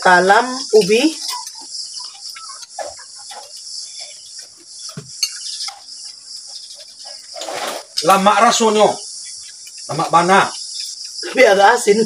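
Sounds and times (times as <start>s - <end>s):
crickets and insects chirring: 0.0s - 12.0s
dishes clicking and knocking: 4.4s - 7.0s.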